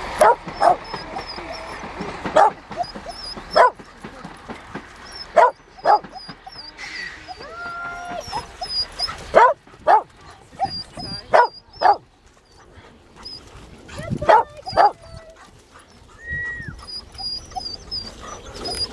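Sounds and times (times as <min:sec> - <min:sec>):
dog barking: 0:00.2 - 0:04.0, 0:05.2 - 0:06.6, 0:08.1 - 0:12.0, 0:14.2 - 0:15.1.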